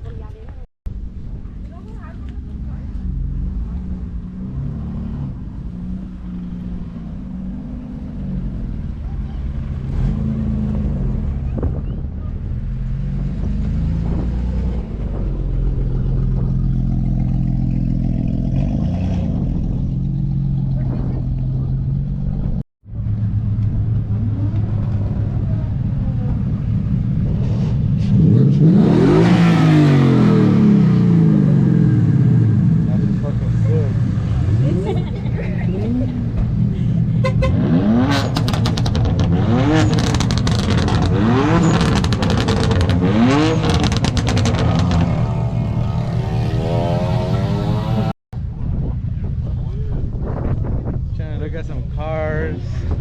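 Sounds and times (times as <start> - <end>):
car engines rumbling: 0.0 - 53.0.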